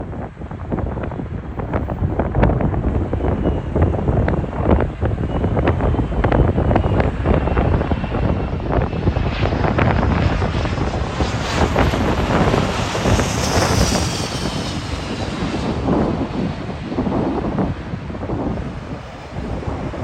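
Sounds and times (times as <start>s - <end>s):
jet engines passing overhead: 0.0s - 20.0s
wind buffeting microphone: 0.0s - 20.0s.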